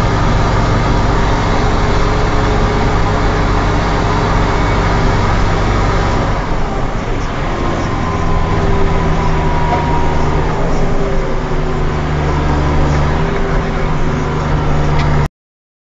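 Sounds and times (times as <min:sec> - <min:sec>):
tractor diesel engine running: 0:00.0 - 0:15.3.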